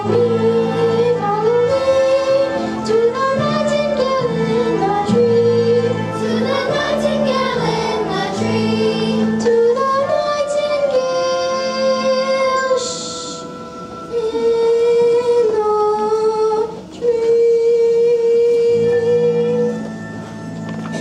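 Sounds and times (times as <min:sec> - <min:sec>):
children singing: 0:00.0 - 0:13.0
instrumental accompaniment: 0:00.0 - 0:21.0.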